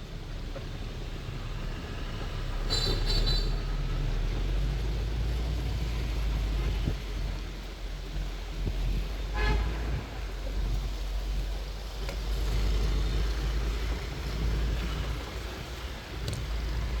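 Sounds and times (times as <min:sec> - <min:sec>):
city street traffic: 0:00.0 - 0:17.0
wind rumble on microphone: 0:00.0 - 0:17.0
vehicle horn toot: 0:09.3 - 0:10.0.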